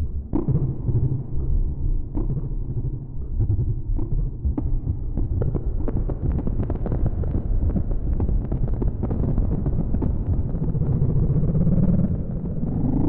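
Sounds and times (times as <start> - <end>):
synthesizer low rumble with clicks: 0.0 - 13.0.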